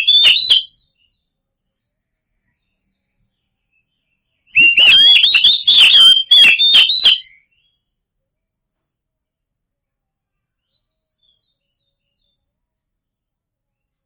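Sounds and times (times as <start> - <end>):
songbird singing whistled notes: 0.0 - 1.2, 2.5 - 7.8.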